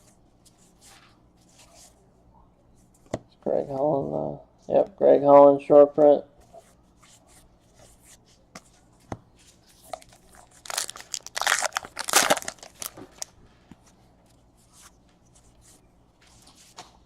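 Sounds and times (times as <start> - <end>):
wrapper being torn and crinkled: 10.1 - 13.3.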